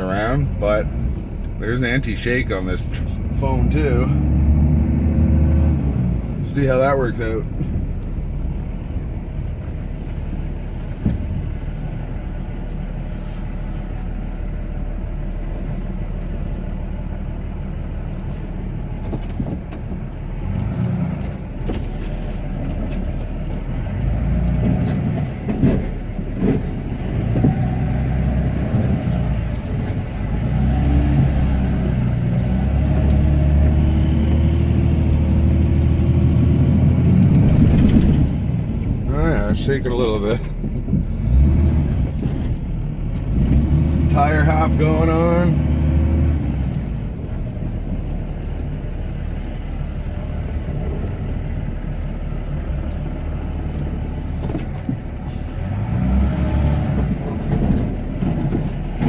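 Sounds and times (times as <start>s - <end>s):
diesel engine under load: 0.0s - 59.0s
knocks and bumps: 10.8s - 11.6s, 24.6s - 27.8s.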